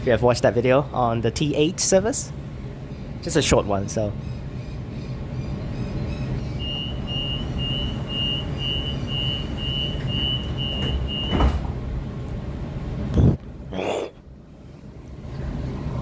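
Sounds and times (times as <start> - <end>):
high warning beeps: 6.2 - 11.3
train doors thudding shut: 6.7 - 12.4.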